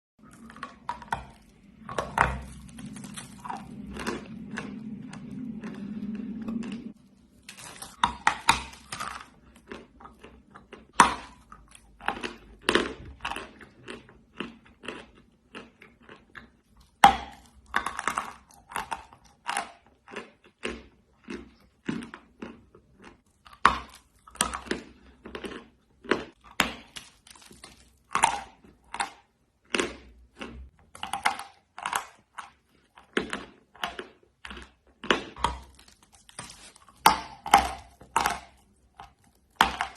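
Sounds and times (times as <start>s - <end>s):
person chewing crunchy clay: 0.2s - 39.9s.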